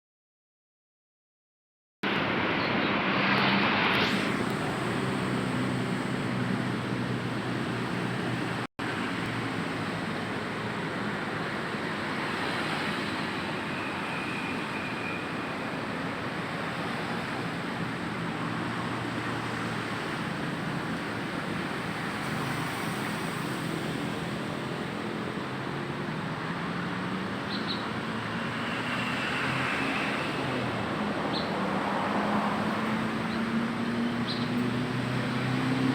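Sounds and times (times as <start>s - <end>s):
vehicle engines running: 2.1s - 35.9s
engine speeding up: 2.9s - 8.7s, 31.6s - 35.9s.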